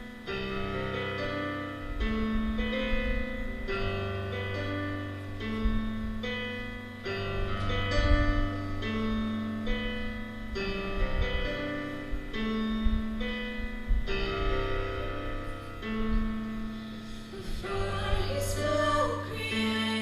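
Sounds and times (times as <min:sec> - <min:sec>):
slow piano music: 0:00.0 - 0:20.0.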